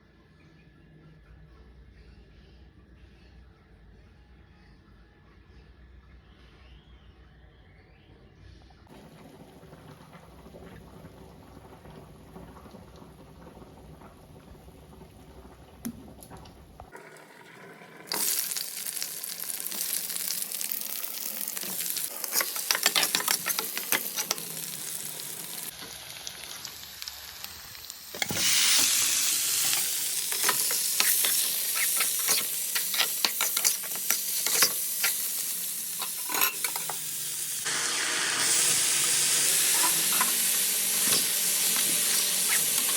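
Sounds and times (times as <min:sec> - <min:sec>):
food sizzling in hot oil: 0:16.9 - 0:42.9
spatula scraping against pan: 0:22.1 - 0:24.7, 0:29.6 - 0:37.0.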